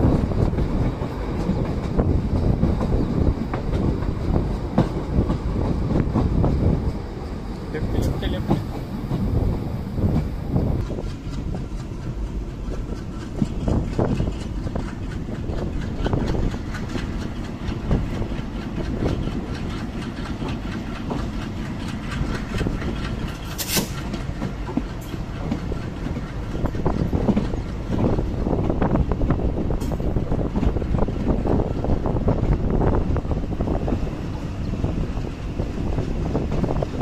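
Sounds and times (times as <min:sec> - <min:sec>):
train rumble: 0:00.0 - 0:37.0
wheels clattering over rails: 0:10.2 - 0:28.8.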